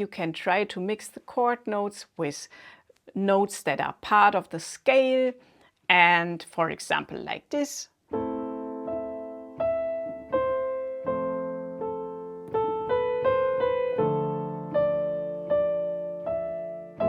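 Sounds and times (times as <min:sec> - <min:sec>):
piano playing: 0:08.1 - 0:17.0.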